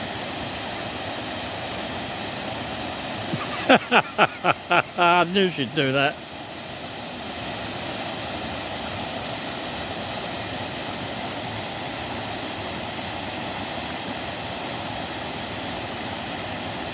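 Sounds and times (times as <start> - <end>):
waterfall roaring: 3.3 - 6.2.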